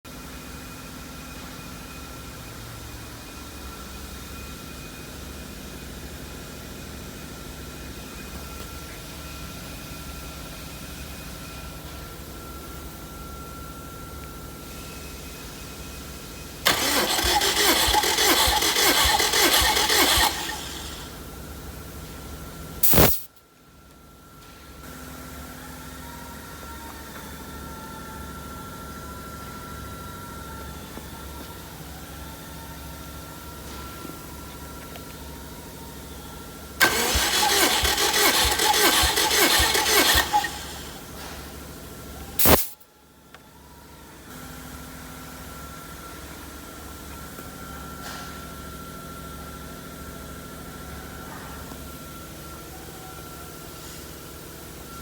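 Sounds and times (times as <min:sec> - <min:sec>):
starter motor cranking engine: 0:16.6 - 0:21.3, 0:22.8 - 0:23.3, 0:36.8 - 0:41.3, 0:42.4 - 0:42.8
short loud burst of noise: 0:16.7 - 0:21.0, 0:22.8 - 0:23.3, 0:42.4 - 0:42.8.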